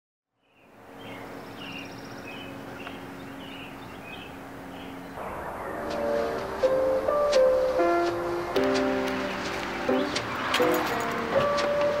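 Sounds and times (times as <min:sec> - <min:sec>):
small birds chirping: 0:00.3 - 0:06.5, 0:08.3 - 0:11.1
steady low hum: 0:00.6 - 0:09.0
music: 0:05.2 - 0:12.0.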